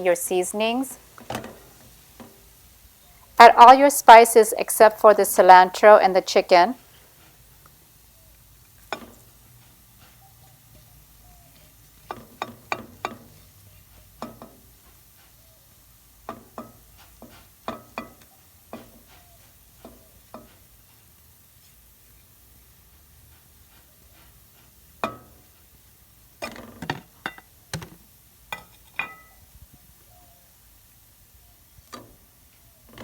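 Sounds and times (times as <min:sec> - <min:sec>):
faint sizzle: 0:00.0 - 0:33.0
metal spoons clinking on pot: 0:08.9 - 0:09.2, 0:12.1 - 0:13.4, 0:17.7 - 0:18.9, 0:28.5 - 0:29.4.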